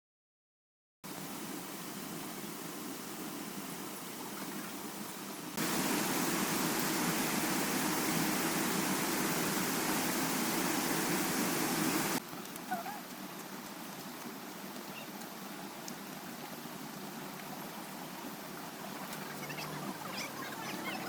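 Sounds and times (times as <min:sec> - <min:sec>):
steady rushing noise: 0:05.4 - 0:12.2.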